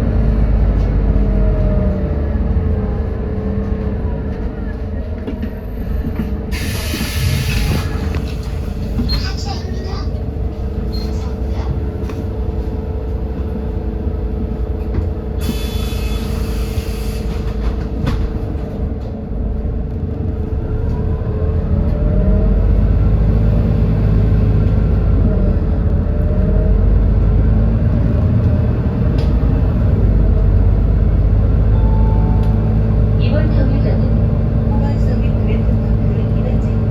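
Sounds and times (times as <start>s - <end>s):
bus engine running: 0.0s - 36.9s
hiss of air: 6.5s - 8.0s, 15.4s - 17.4s.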